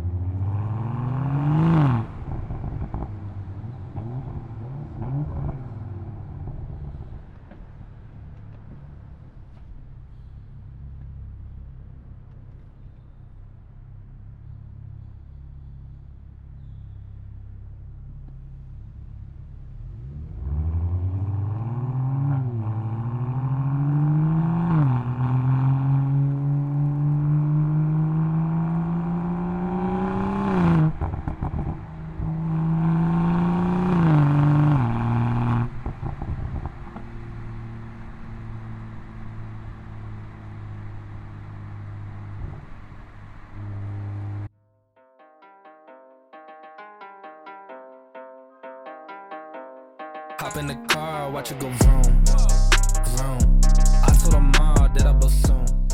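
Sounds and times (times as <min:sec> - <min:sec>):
car engine accelerating through gears: 0:00.0 - 0:44.5
exhaust crackles: 0:50.6 - 0:55.9.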